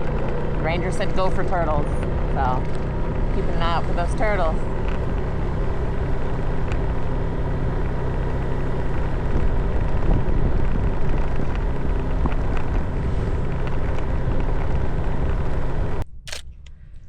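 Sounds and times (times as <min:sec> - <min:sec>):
vehicle running noise: 0:00.0 - 0:17.0
wind rushing over microphone: 0:08.6 - 0:16.0.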